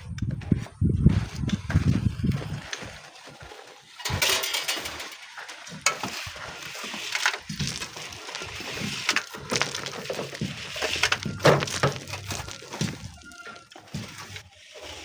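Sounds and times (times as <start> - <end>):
sand and stones crunching: 0.0 - 15.0.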